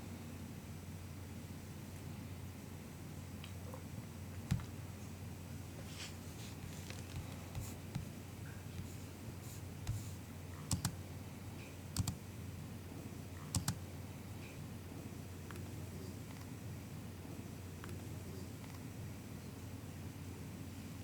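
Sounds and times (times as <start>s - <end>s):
low steady hum: 0.0s - 21.0s
soft keyboard keystrokes: 4.5s - 4.8s, 6.5s - 9.0s, 9.9s - 11.0s, 12.0s - 12.2s, 13.4s - 13.8s.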